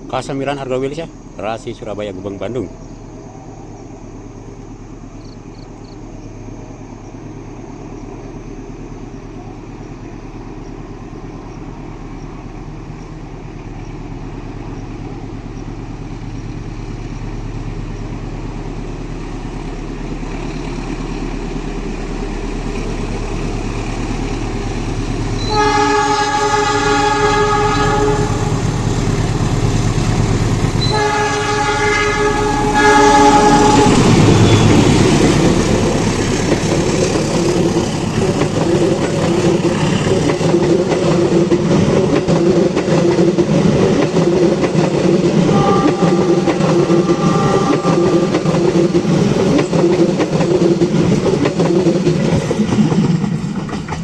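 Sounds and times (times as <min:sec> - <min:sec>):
diesel locomotive engine rumble: 0:00.0 - 0:54.0
train horn blast: 0:25.4 - 0:29.5, 0:30.7 - 0:36.3, 0:45.4 - 0:49.4.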